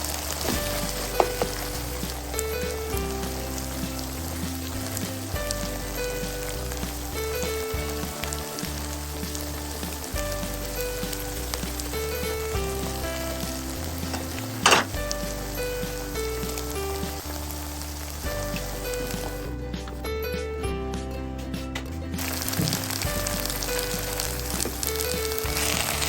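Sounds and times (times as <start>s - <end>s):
food sizzling in frying pan: 0.0s - 19.6s, 22.2s - 26.0s
background music with bass line: 0.0s - 26.0s
scraping in pan: 14.0s - 15.0s.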